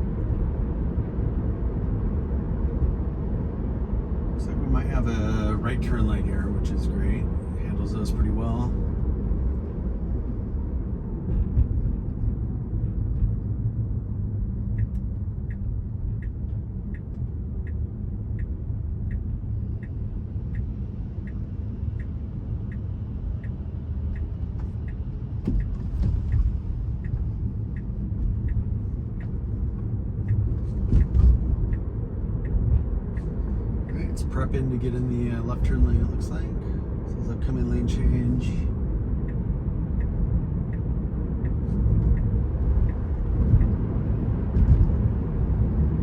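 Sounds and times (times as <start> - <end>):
road and tyre rumble: 0.0 - 46.0
turn signal ticking: 9.5 - 46.0.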